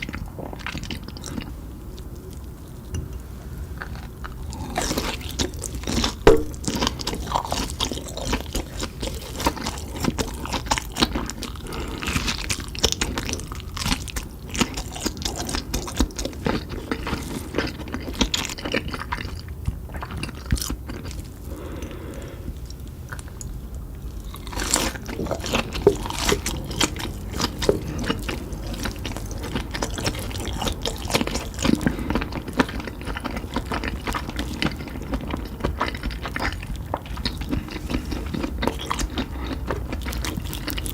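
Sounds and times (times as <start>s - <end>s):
person chewing and crunching: 0.0s - 40.9s.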